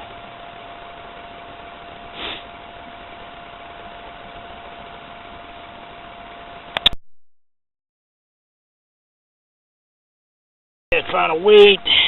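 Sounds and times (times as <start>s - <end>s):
steady hiss: 0.0s - 6.0s.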